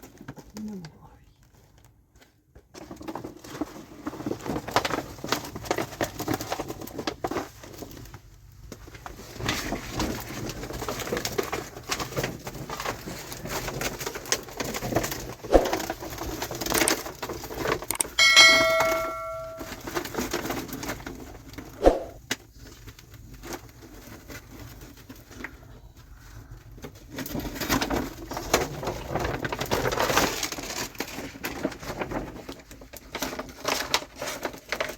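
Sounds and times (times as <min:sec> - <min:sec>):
objects knocking and clattering: 0:12.0 - 0:20.5
metallic ring: 0:17.9 - 0:19.8.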